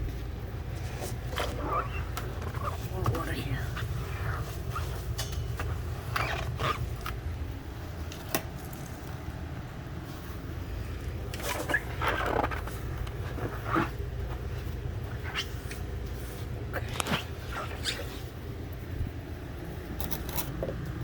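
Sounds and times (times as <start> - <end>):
steady low hum: 0.0 - 21.0
rubbing while washing: 0.7 - 7.1, 10.0 - 18.4.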